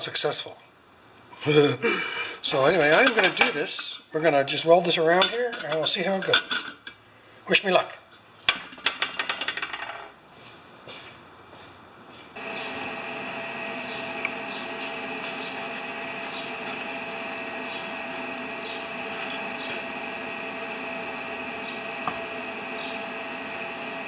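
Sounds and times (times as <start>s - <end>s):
welder arc crackling and buzzing: 12.4s - 24.0s.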